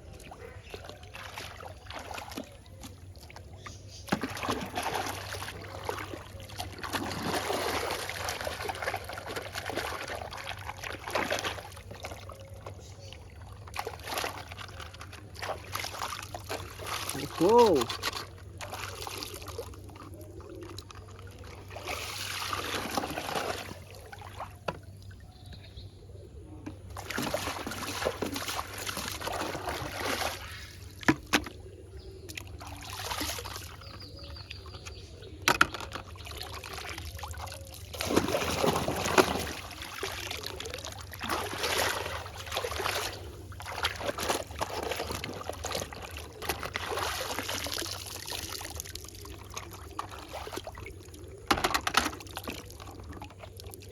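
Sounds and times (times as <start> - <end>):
water pouring and trickling: 0.8 - 25.2, 35.6 - 53.9.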